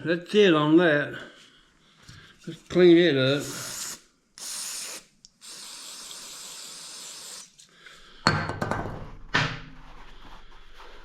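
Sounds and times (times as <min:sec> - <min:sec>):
aerosol can spraying: 0:03.3 - 0:07.6.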